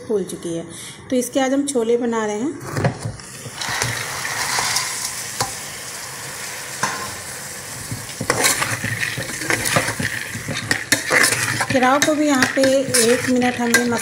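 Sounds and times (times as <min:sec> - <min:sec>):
peas sizzling in hot oil: 0:03.2 - 0:14.0
spatula scraping a pot: 0:07.9 - 0:14.0.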